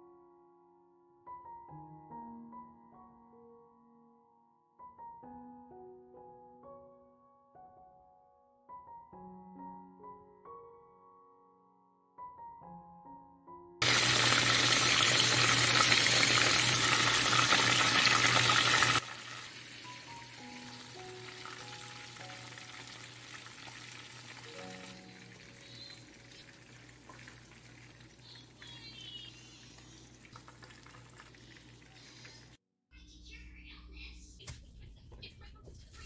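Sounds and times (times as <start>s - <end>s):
soft piano-like music: 0.0s - 14.4s, 18.8s - 32.3s
chicken frying in hot oil: 13.8s - 32.6s.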